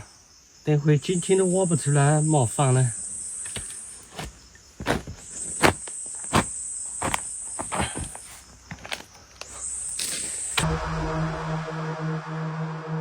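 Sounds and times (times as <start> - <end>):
crickets trilling: 0.0 - 10.7
digging tool striking earth: 3.4 - 10.6.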